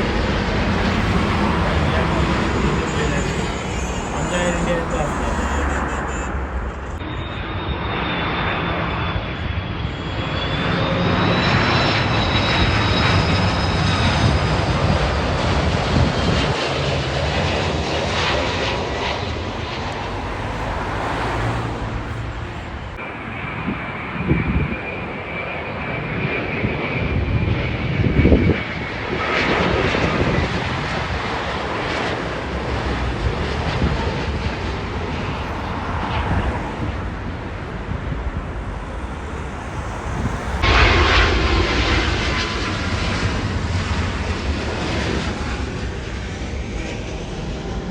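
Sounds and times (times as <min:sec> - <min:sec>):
jet airliner passing overhead: 0:00.0 - 0:47.9
low bumps: 0:19.0 - 0:23.0, 0:32.5 - 0:42.3.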